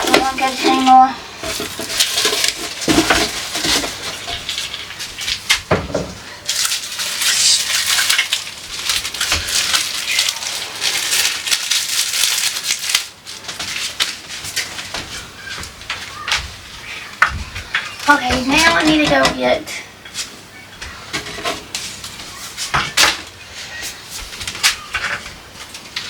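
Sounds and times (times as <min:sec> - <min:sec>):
plastic packaging crinkling: 0:00.0 - 0:05.7, 0:06.4 - 0:16.3.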